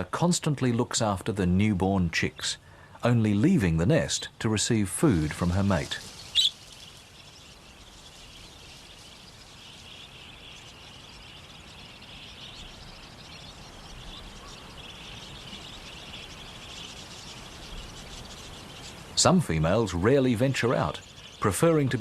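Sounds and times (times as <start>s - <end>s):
loud bird chirp: 5.2s - 22.0s
high-pitched insect chorus: 5.6s - 21.5s.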